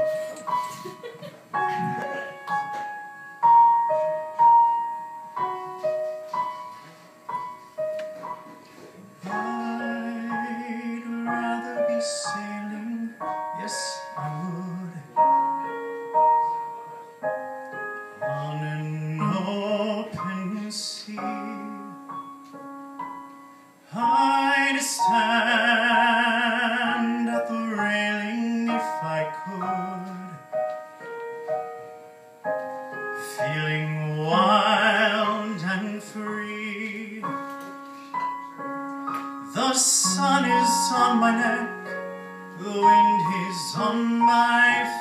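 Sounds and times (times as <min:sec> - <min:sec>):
piano accompaniment: 0:00.0 - 0:45.0.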